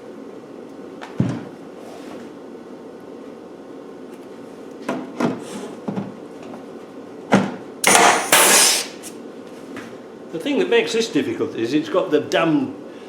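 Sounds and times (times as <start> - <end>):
power drill drilling metal: 7.8 - 8.9.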